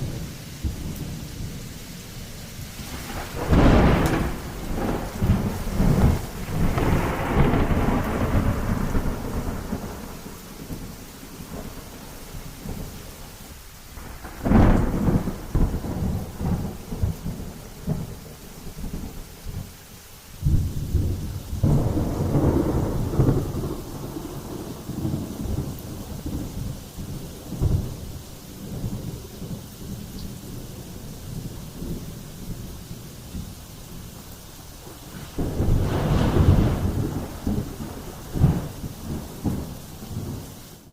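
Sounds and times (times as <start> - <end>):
rolling thunder: 0.0 - 2.0, 2.6 - 13.0, 14.0 - 19.7, 20.4 - 40.9
steady rain: 0.0 - 40.9
sharp thunder clap: 2.8 - 10.9, 14.0 - 18.2, 20.4 - 29.6, 34.8 - 40.4.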